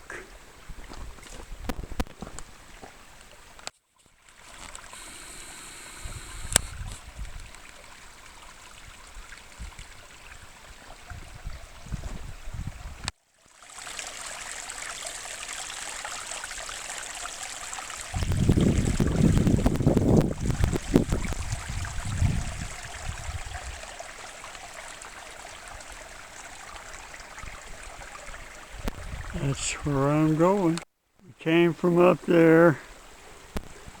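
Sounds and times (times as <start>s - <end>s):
brook babbling over rocks: 7.0s - 12.0s, 13.4s - 30.8s
wind buffeting microphone: 11.0s - 13.1s, 18.1s - 23.9s, 27.5s - 30.0s.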